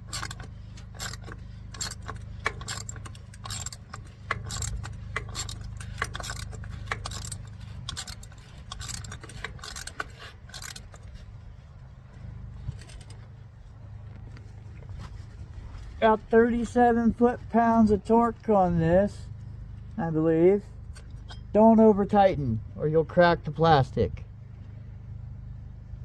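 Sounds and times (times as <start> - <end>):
ratchet clicking: 0.0 - 11.2
steady low hum: 0.0 - 26.0.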